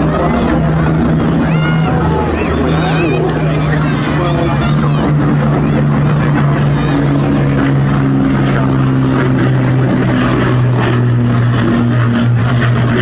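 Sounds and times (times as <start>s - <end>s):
propeller aircraft engine droning: 0.0s - 13.0s.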